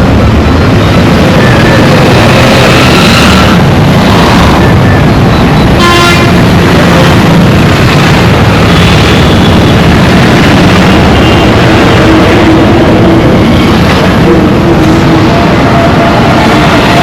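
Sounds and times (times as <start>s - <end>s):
road traffic noise: 0.0s - 17.0s
vehicle horn toot: 5.8s - 6.4s.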